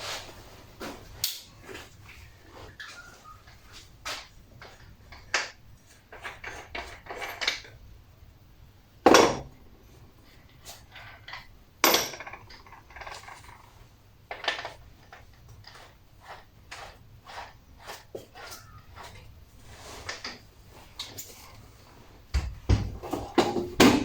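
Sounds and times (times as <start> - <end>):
metal tools clanking on workbench: 4.6 - 7.8.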